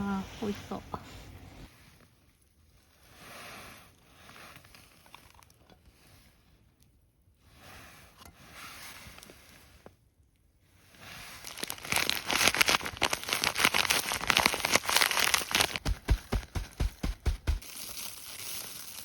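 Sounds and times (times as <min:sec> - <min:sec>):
packaging crinkling: 0:11.4 - 0:19.0.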